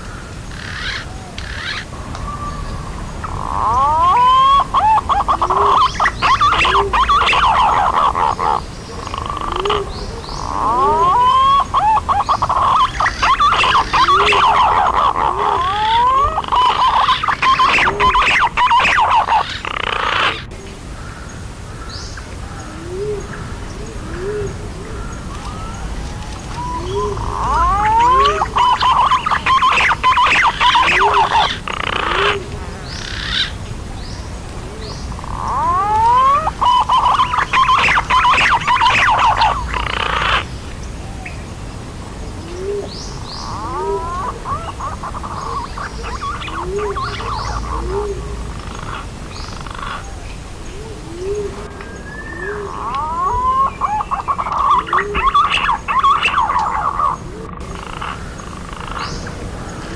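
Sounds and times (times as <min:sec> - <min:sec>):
pigeons rising wavering whistles: 0:01.6 - 0:08.6, 0:09.2 - 0:20.3, 0:24.2 - 0:32.4, 0:35.2 - 0:40.4, 0:42.6 - 0:49.6, 0:51.0 - 0:57.2
short low arched bird notes: 0:24.1 - 0:32.4.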